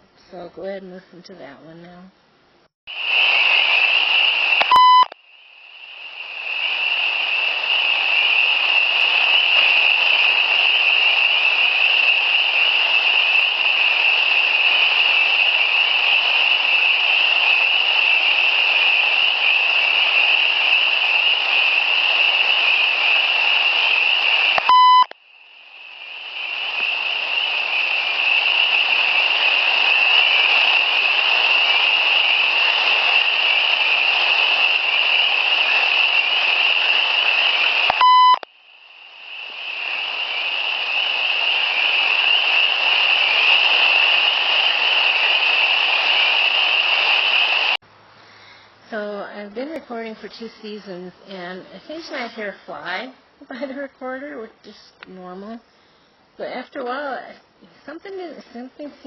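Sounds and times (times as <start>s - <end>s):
high-pitched hiss: 2.9s - 49.1s, 49.7s - 53.9s
recorder button beeps: 4.6s - 5.2s, 24.6s - 25.2s, 37.9s - 38.5s.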